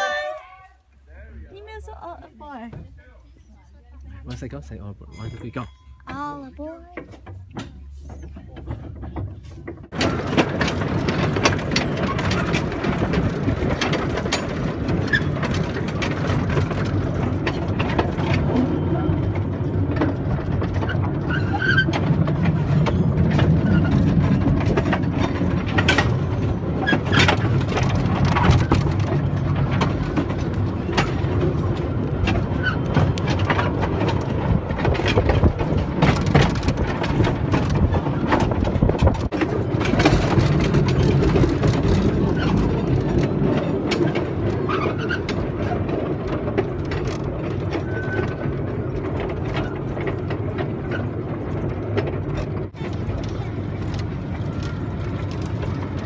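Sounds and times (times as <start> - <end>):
train cars clanking: 0.0 - 0.8, 1.6 - 56.0
train engine hum: 0.0 - 56.0
wheel squeals: 13.8 - 16.2, 17.0 - 46.1, 46.9 - 51.2.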